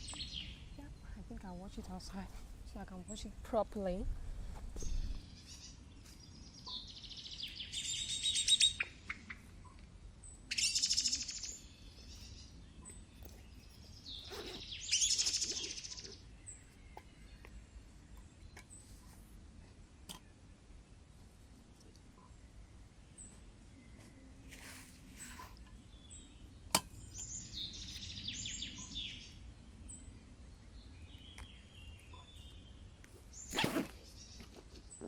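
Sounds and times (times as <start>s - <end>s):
bird chattering trills: 14.1s - 16.2s.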